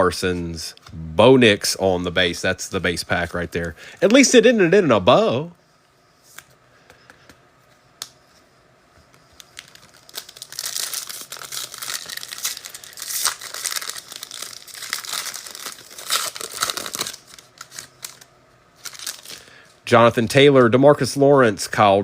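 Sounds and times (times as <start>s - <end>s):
foil wrapper tearing and crinkling: 9.4s - 19.5s.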